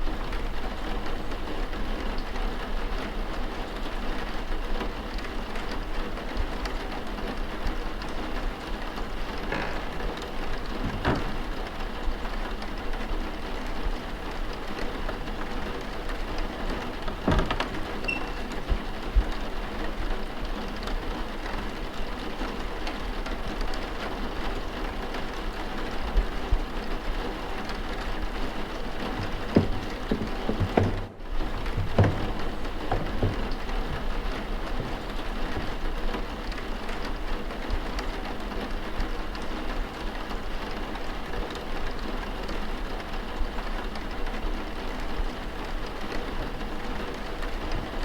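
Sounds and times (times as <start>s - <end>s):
steady rain patter: 0.0s - 48.0s
faint knocks: 9.1s - 12.0s, 14.6s - 18.9s, 27.7s - 36.3s.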